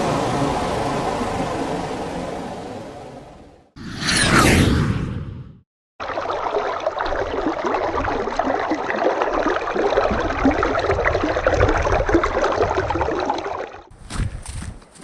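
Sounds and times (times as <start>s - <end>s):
whoosh sound effect: 3.8s - 5.6s
stream water bubbling: 6.0s - 13.9s.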